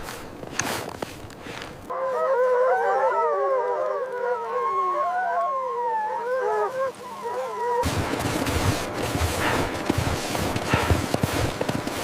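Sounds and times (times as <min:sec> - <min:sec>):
rough crunching noise: 0:00.0 - 0:01.9, 0:07.8 - 0:12.0
wolves howling: 0:01.9 - 0:07.9.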